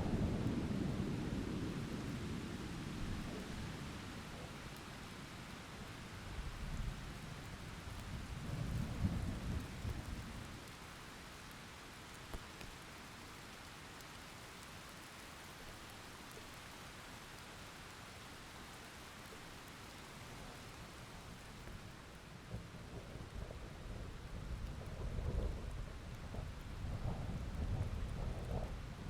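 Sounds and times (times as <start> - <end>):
thunder rolling: 22.5 - 29.0.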